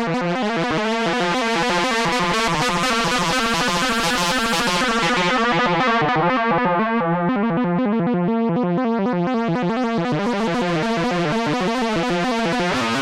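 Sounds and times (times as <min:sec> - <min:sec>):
synthesizer playing fast melody: 0:01.0 - 0:08.6, 0:10.4 - 0:13.0.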